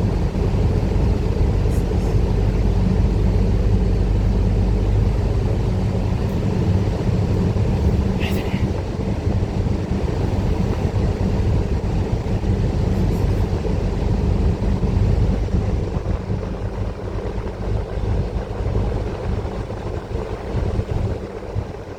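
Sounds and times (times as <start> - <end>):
bus engine and road rumble: 0.0 - 21.9.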